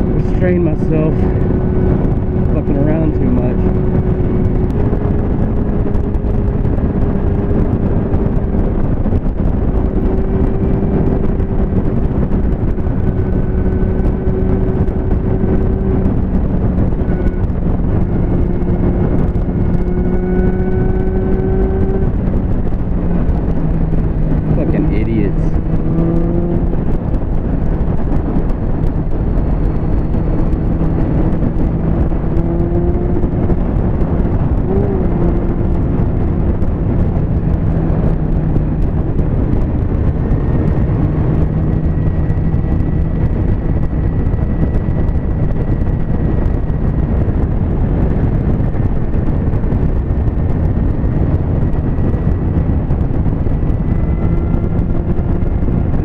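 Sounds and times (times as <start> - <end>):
motorcycle engine cruising: 0.0 - 56.0
wind noise: 0.0 - 56.0.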